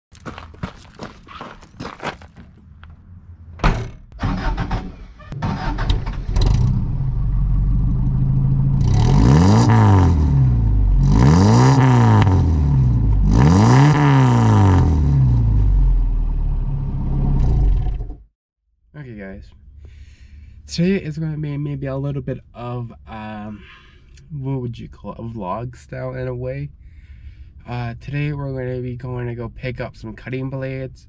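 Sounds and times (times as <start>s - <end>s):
car engine running and revving: 6.3s - 18.2s.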